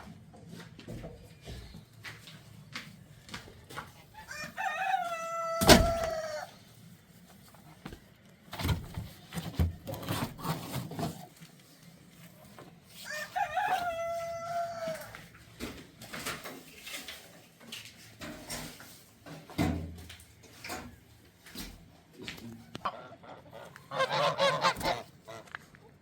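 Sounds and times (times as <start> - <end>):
rooster crowing: 4.2 - 6.6, 13.0 - 15.3.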